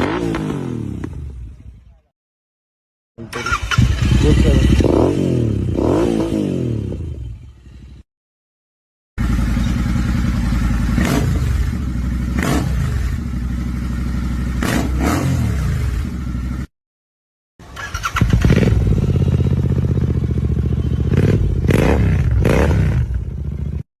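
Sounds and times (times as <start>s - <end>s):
motorcycle throttle blips: 9.2s - 13.5s, 17.8s - 23.8s
motorcycle engine idling: 9.2s - 14.6s, 17.9s - 23.8s.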